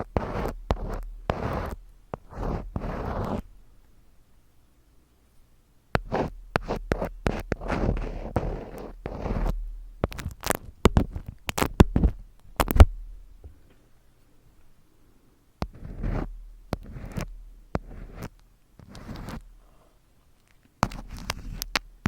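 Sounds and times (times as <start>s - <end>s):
crackling scratches: 0.0s - 3.5s, 6.0s - 12.9s, 15.6s - 22.0s.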